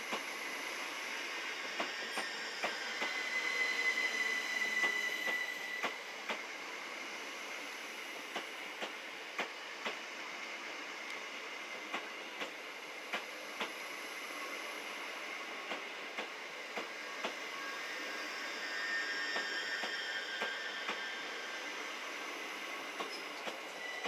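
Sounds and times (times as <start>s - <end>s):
electric train running past: 0.0s - 24.0s
high wheel squeal: 1.4s - 6.1s, 17.0s - 24.0s.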